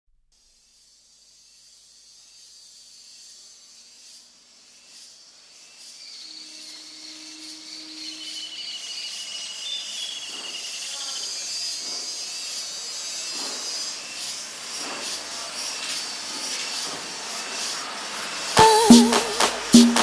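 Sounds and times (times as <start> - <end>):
steady hiss: 0.4 - 9.9
sharp percussion hits: 18.6 - 20.0
synthesizer cumbia music: 18.6 - 20.0.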